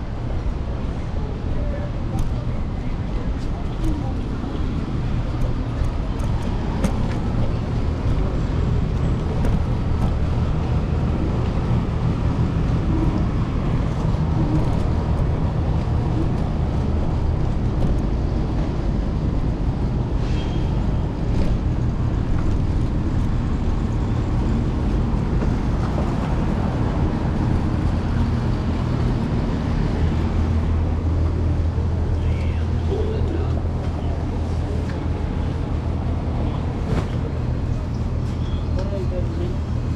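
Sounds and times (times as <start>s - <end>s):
electric scooter road rumble: 0.0s - 39.9s
traffic: 0.0s - 39.9s.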